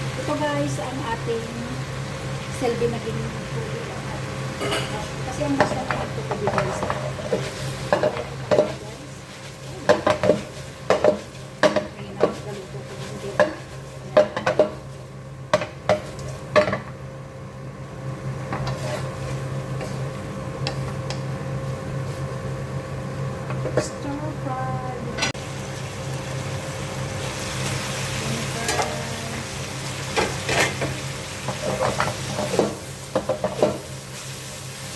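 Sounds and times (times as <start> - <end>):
food sizzling in a pan: 0.0 - 17.0, 18.1 - 23.8, 25.4 - 34.9
utensil scraping a pan: 18.5 - 20.0.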